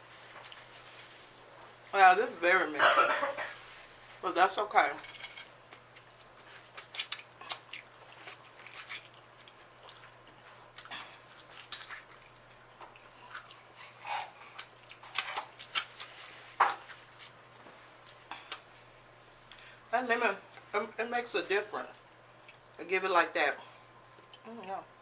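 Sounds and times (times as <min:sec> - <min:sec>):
food being chewed: 0:00.1 - 0:01.2, 0:05.4 - 0:19.6, 0:23.9 - 0:24.8.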